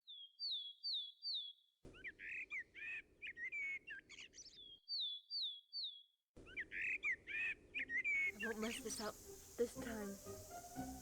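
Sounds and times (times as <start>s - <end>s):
varied birdsong: 0.0s - 11.0s
faint hiss: 8.3s - 11.0s.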